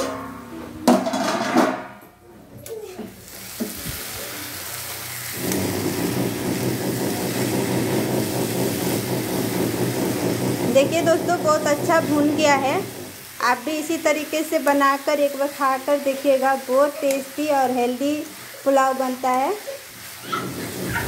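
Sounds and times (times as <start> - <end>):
rice sizzling in hot oil: 3.1 - 21.0
loud clatter: 5.4 - 13.1
spatula stirring and scraping: 18.2 - 21.0.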